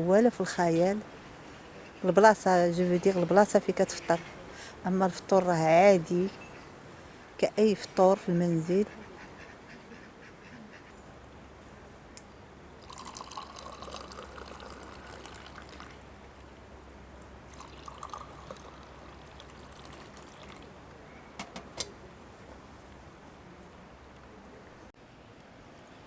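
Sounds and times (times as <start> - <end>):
drink poured into cup: 12.8 - 16.0, 17.5 - 20.8.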